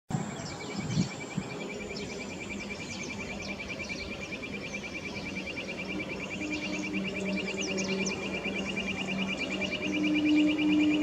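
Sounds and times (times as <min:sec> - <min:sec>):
birds chirping: 0:00.2 - 0:11.0.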